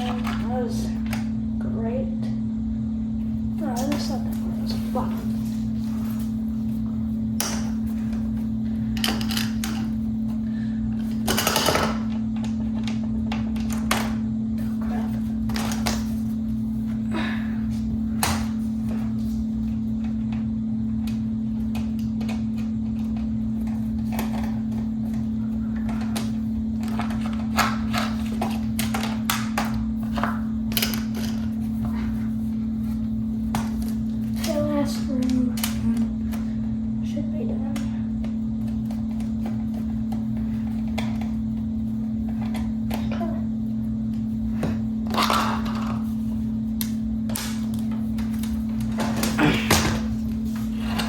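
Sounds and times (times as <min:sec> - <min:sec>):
steady hum: 0:00.0 - 0:51.0
plastic fan parts clicking and tapping: 0:07.4 - 0:10.0, 0:11.0 - 0:14.2, 0:19.6 - 0:32.1, 0:33.4 - 0:36.5.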